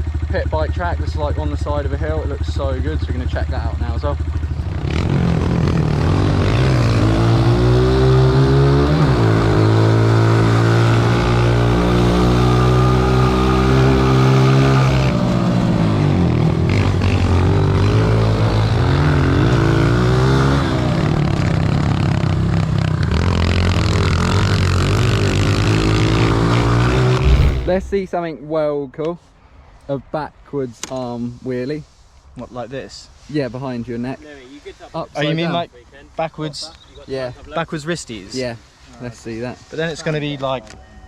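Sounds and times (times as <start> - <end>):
motorbike engine revving: 26.9 - 28.1.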